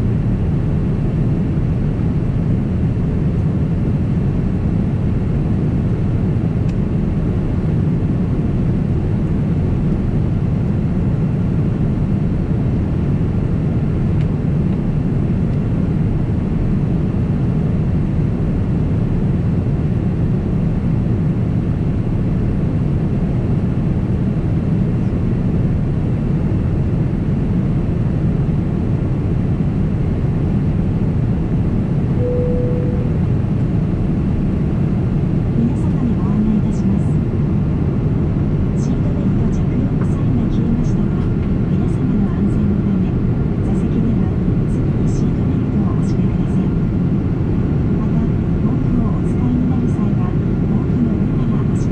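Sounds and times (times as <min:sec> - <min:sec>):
aircraft cabin engine rumble: 0:00.0 - 0:51.9
single tone: 0:32.2 - 0:33.3.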